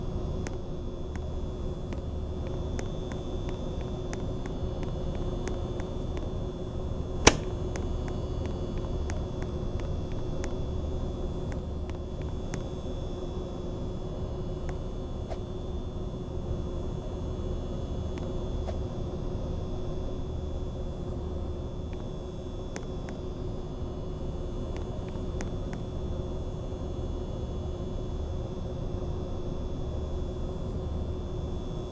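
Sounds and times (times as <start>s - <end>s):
ceiling fan motor hum: 0.0s - 31.9s
sharp click: 7.2s - 7.6s.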